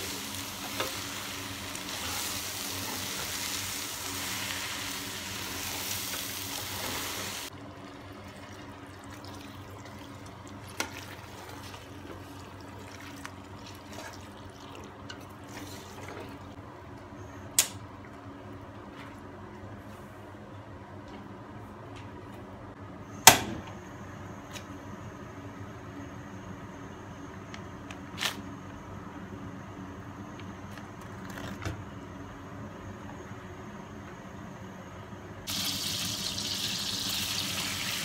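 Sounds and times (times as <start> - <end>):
vegetables sizzling in a pot: 0.0 - 7.5, 35.5 - 38.0.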